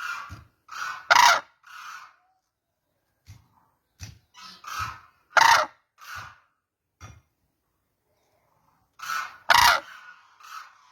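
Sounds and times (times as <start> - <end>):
cranes calling: 4.4 - 6.5, 9.0 - 10.9.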